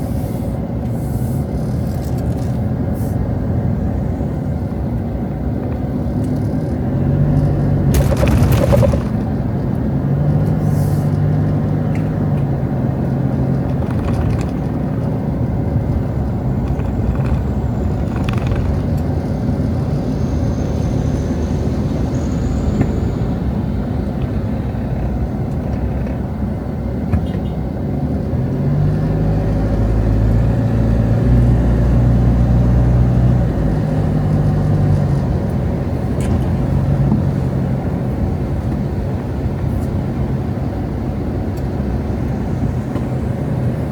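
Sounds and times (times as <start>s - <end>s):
vehicle engine hum: 0.0s - 43.9s
cars driving past: 6.3s - 39.7s.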